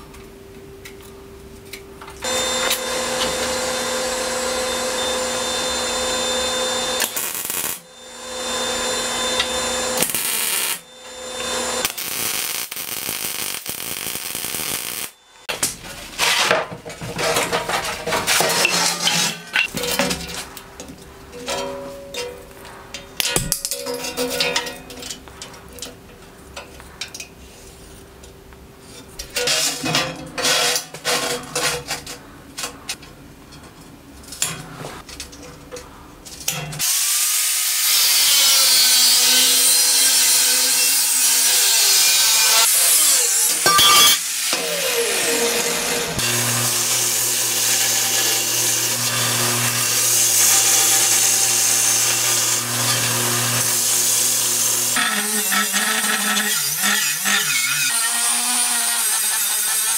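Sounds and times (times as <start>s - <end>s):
angle grinder cutting steel: 2.2s - 15.5s, 17.2s - 20.1s, 36.8s - 59.9s
belt grinder humming: 2.2s - 15.5s, 44.5s - 59.9s.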